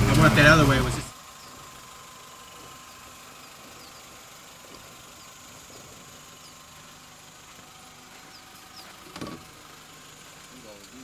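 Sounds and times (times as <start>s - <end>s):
car engine running quietly: 0.0s - 11.0s
faint high chirps: 3.3s - 4.3s, 5.1s - 6.8s.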